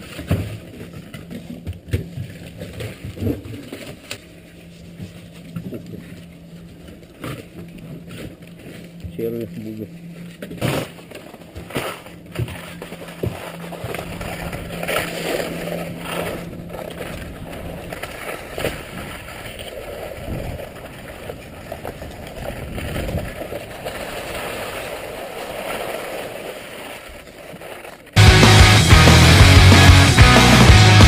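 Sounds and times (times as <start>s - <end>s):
skis scraping on snow: 13.4s - 28.2s
loud rock music: 28.2s - 31.0s.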